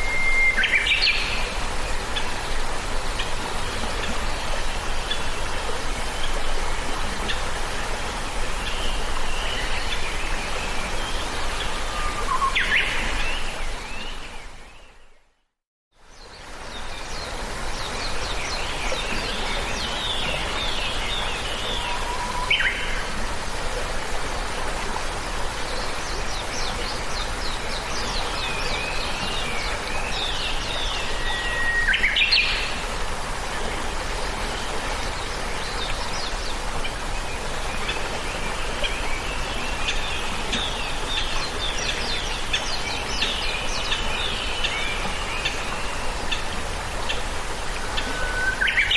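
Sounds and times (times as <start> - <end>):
whistled bird calls dropping in pitch: 0.0 - 0.9
steady background hiss: 0.0 - 15.2, 16.0 - 48.9
songbirds chirping and trilling: 33.8 - 48.9.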